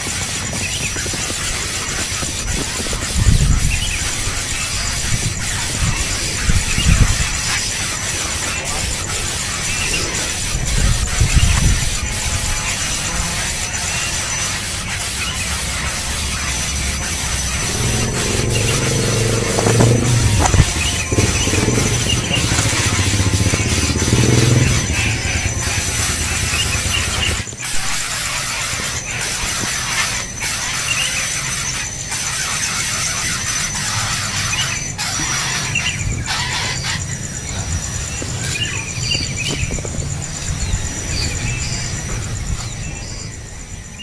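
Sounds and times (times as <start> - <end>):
high insect drone: 0.0 - 44.0
nestling birds begging calls: 0.0 - 44.0.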